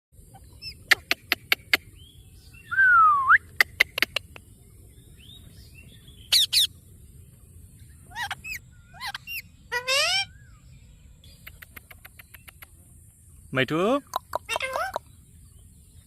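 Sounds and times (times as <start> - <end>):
parrot chirping and whistling: 6.3 - 6.7, 8.1 - 10.4.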